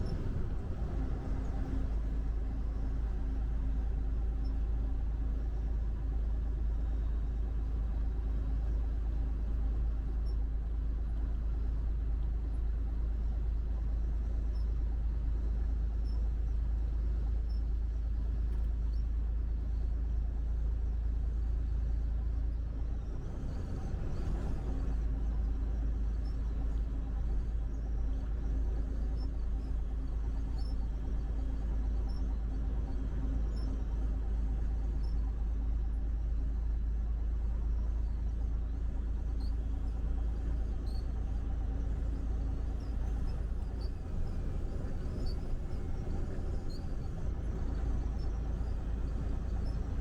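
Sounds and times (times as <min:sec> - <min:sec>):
engine hum: 0:00.0 - 0:10.3, 0:23.0 - 0:50.0
vehicle road rumble: 0:00.0 - 0:19.0, 0:22.8 - 0:50.0.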